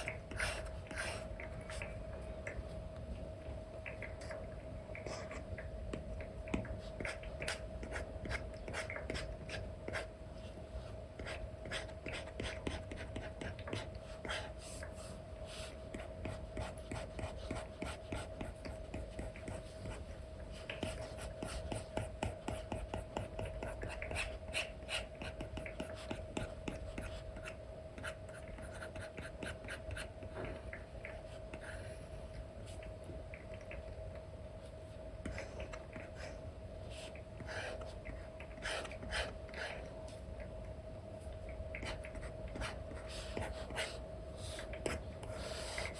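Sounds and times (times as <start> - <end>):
faint steady hum: 0.0 - 45.9
stylus scratching and tapping: 15.9 - 30.4.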